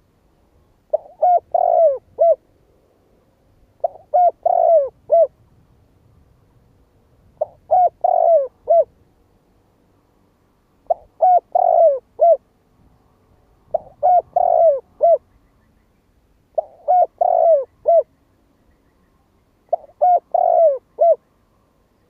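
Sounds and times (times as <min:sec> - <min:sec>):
dove cooing: 0:00.9 - 0:02.4, 0:03.8 - 0:05.4, 0:07.4 - 0:09.0, 0:10.8 - 0:12.4, 0:13.7 - 0:15.3, 0:16.6 - 0:18.1, 0:19.7 - 0:21.2.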